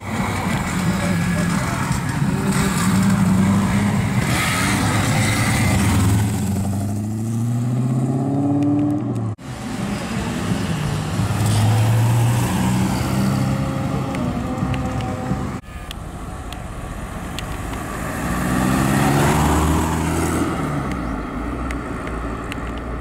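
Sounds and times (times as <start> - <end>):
car engine accelerating away: 18.2 - 20.9.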